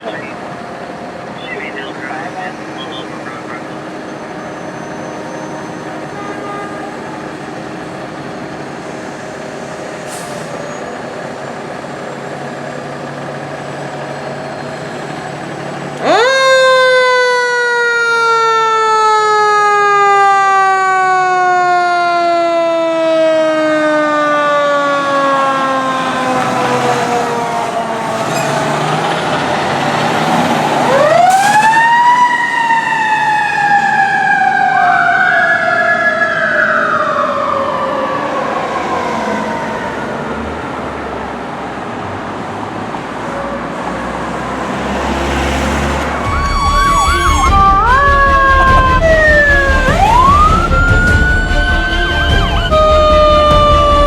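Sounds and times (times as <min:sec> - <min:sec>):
fire truck sirens wailing: 0:00.0 - 0:54.0
siren yelps: 0:16.0 - 0:29.9, 0:30.6 - 0:40.4, 0:46.1 - 0:54.0
deep engine rumble: 0:46.0 - 0:54.0.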